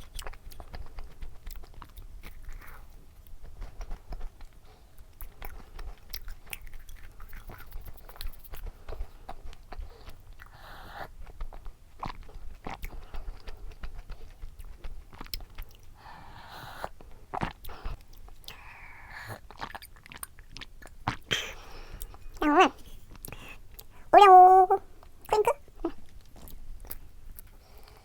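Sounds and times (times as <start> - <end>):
person chewing cookie: 0.0 - 28.0
mouth clicks: 22.4 - 25.6.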